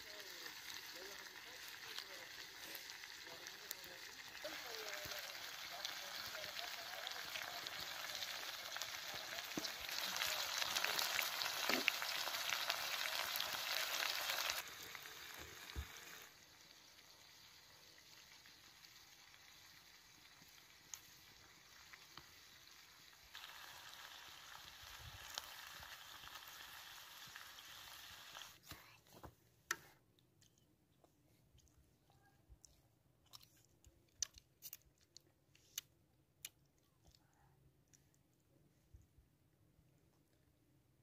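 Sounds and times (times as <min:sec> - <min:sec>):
food sizzling in iron pan: 0:00.0 - 0:28.6.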